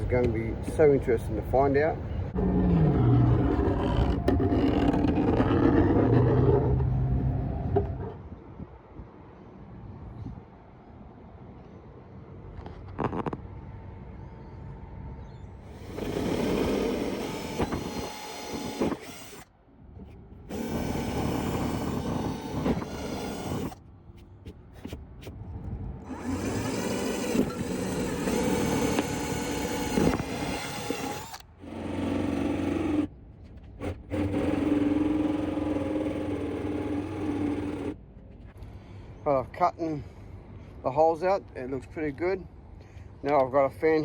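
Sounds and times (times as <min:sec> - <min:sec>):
power drill boring plastic: 0:15.7 - 0:19.5, 0:20.5 - 0:23.8, 0:26.1 - 0:33.1, 0:33.8 - 0:38.0.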